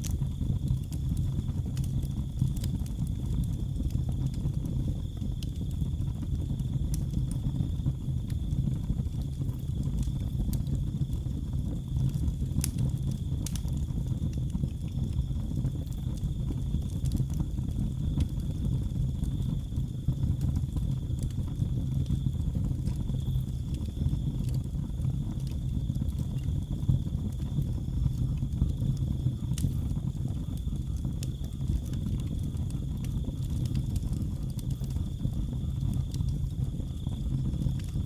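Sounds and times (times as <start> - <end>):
flames rumbling: 0.0 - 38.0
wood fire crackling: 0.0 - 38.0
crickets chirping: 15.2 - 38.0.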